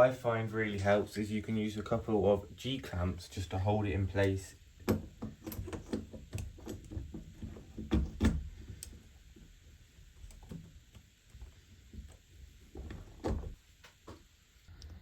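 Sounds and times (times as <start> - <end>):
clamps clicking and knocking: 4.8 - 8.9.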